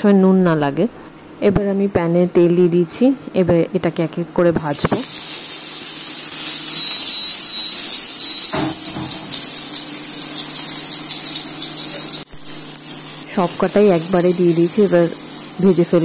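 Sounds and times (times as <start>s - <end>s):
food frying in hot oil: 4.7s - 16.0s.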